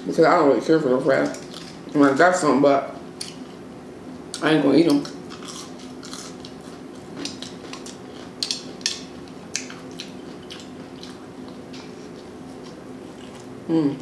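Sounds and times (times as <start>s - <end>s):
faint steady hum: 0.0s - 14.0s
person chewing and smacking: 3.2s - 3.6s, 4.3s - 13.6s.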